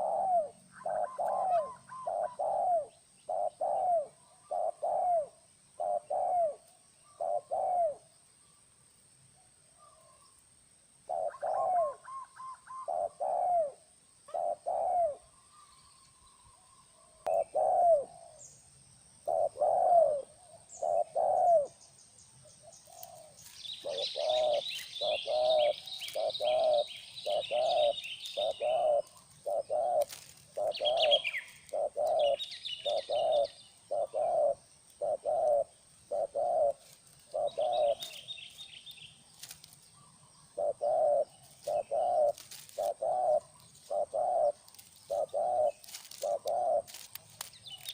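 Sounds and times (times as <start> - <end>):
doves cooing: 0.0 - 8.1, 11.1 - 18.5, 19.2 - 21.8, 22.6 - 47.9
small birds chirping: 0.0 - 47.9.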